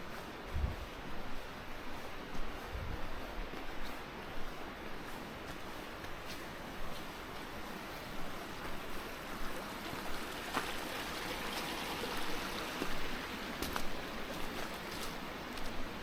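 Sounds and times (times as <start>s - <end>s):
waterfall rushing: 9.1s - 15.0s
water splashes: 9.3s - 15.7s.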